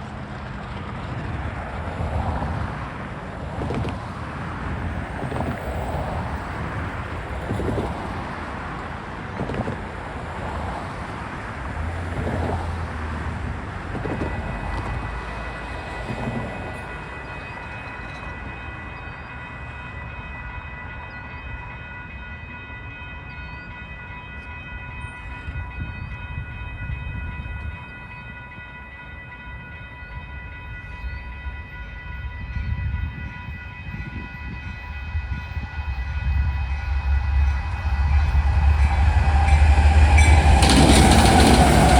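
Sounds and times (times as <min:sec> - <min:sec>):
low rumble of train: 0:00.0 - 0:41.9
railroad crossing bell ringing: 0:01.6 - 0:41.9
outdoor rumble: 0:36.3 - 0:41.9.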